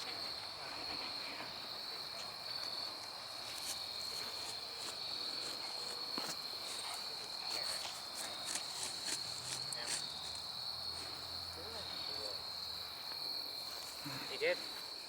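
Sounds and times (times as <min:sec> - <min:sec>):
crickets trilling: 0:00.0 - 0:15.0
faint clicks and rustles: 0:02.1 - 0:10.5.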